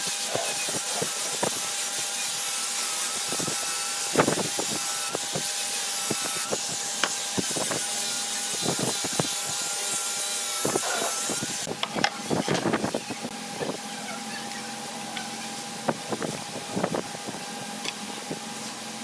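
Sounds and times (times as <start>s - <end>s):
hand tool scraping wood: 0.0s - 11.7s.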